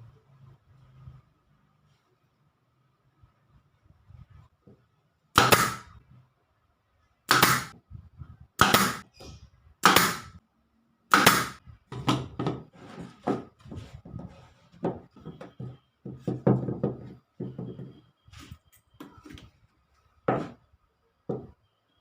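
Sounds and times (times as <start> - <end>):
loud wooden strikes: 5.4 - 5.9, 8.6 - 9.1, 9.8 - 10.4, 11.1 - 12.3
wooden knocks and clatter: 11.9 - 18.1.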